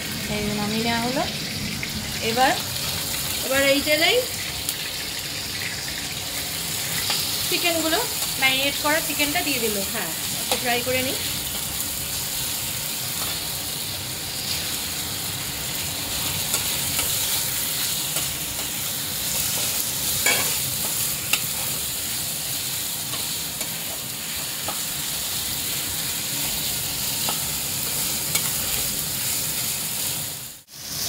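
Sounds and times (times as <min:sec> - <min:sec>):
chicken sizzling in hot oil: 0:00.0 - 0:31.0
metal spatula tapping and scraping pan: 0:20.2 - 0:21.5.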